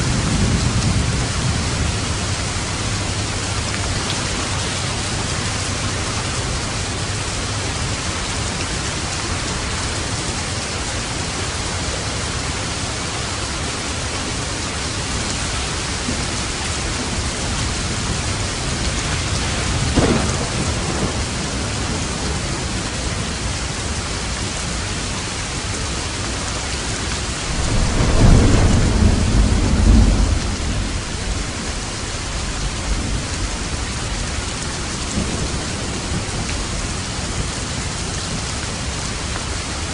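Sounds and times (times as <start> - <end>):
deep thunder rumble: 0.0 - 10.2, 13.7 - 24.7, 27.2 - 39.9
heavy rain on a roof: 0.0 - 39.9
thunder crack: 19.0 - 22.4, 27.5 - 31.8.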